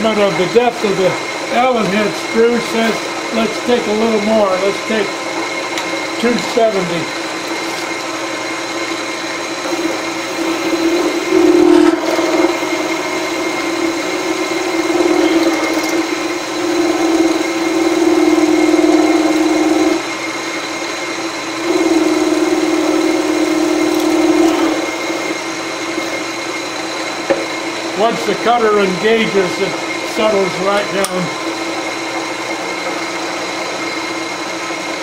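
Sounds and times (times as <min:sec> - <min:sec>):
end mill cutting metal: 0:00.0 - 0:35.0
milling machine spindle hum and whine: 0:00.0 - 0:35.0.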